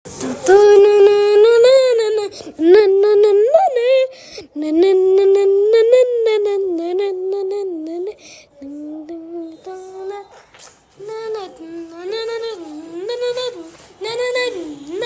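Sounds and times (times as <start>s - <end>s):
high voice singing held notes: 0.1s - 10.3s.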